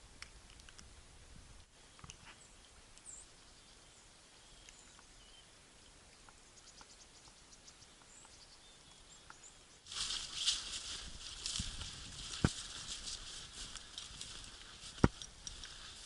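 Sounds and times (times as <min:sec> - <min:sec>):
small birds chirping: 0:01.8 - 0:16.0
faint ticks: 0:13.3 - 0:16.0.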